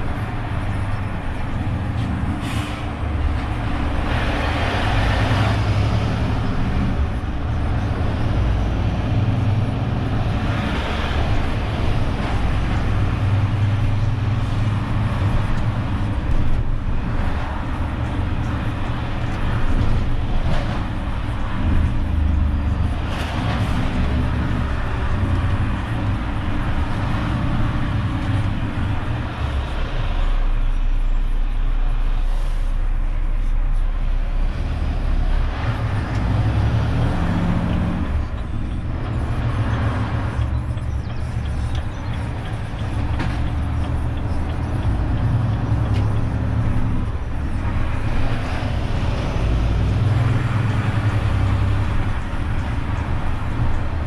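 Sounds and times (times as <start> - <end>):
truck engine running: 35.2 - 54.0.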